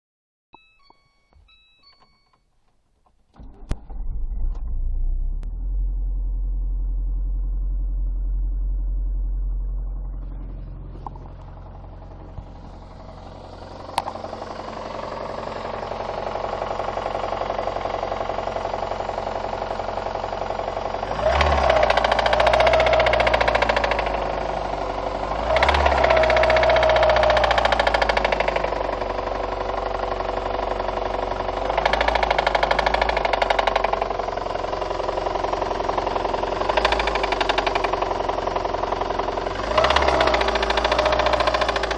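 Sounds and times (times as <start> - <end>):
knocking engine revving: 3.4 - 41.9.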